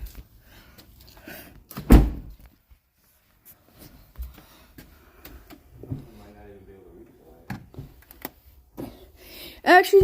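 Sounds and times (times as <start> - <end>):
truck door slamming: 1.8 - 2.3.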